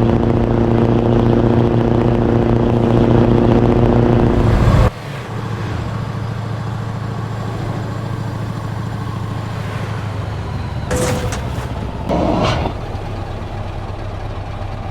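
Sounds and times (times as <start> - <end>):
truck engine idling: 5.0 - 14.9.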